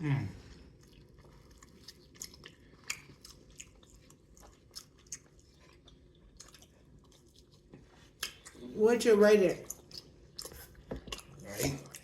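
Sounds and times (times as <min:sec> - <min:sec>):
chewing with wet mouth sounds: 0:00.3 - 0:08.8, 0:09.4 - 0:12.0.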